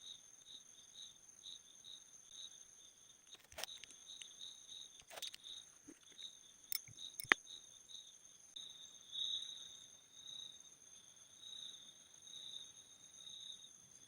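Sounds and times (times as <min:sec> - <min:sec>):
cricket chirping: 0:00.0 - 0:14.0
sharp clicks and taps: 0:06.0 - 0:07.4.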